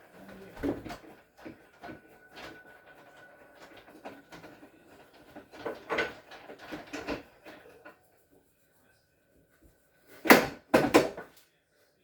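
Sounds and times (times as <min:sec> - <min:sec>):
knocks and clatters: 0:00.5 - 0:08.0.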